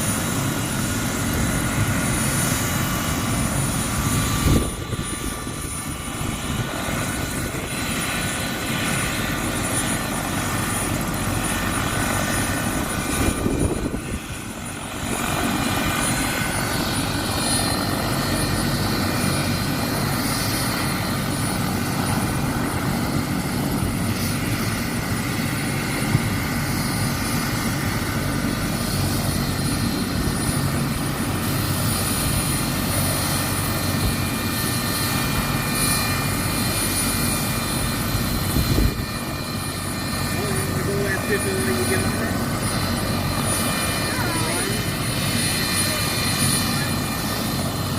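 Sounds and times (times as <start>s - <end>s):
helicopter engine and rotor: 0.0s - 47.9s
high-pitched turbine whine: 0.0s - 47.9s.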